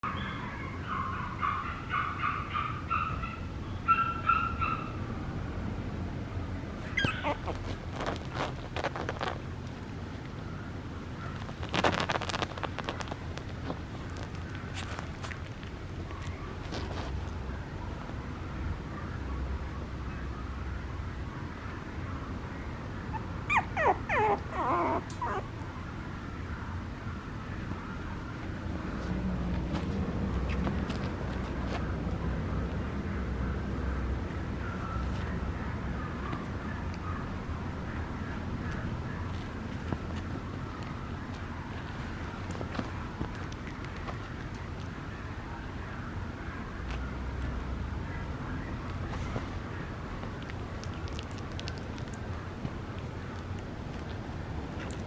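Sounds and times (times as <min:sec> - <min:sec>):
puppy whimpering: 0:06.8 - 0:09.4, 0:23.1 - 0:25.6.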